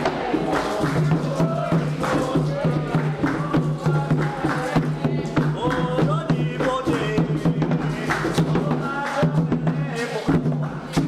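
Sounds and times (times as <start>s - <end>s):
drums beating fast rhythm: 0.0s - 11.0s
voices singing a chant: 0.0s - 11.0s.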